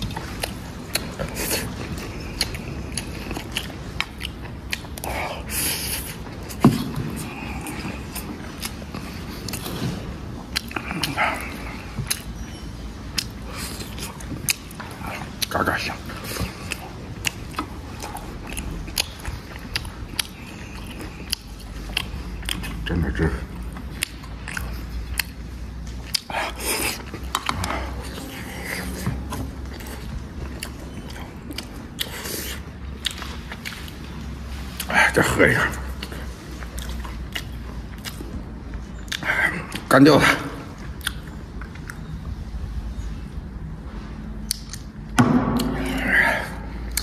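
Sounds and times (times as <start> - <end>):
person chewing and biting: 0.0 - 34.9, 35.9 - 39.9, 40.8 - 42.1, 44.3 - 46.2, 46.8 - 47.0.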